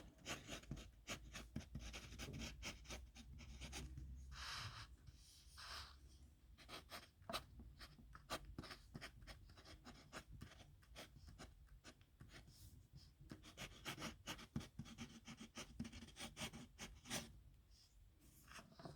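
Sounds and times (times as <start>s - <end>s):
pen scratching on paper: 0.2s - 4.9s, 6.6s - 12.6s, 13.3s - 17.3s.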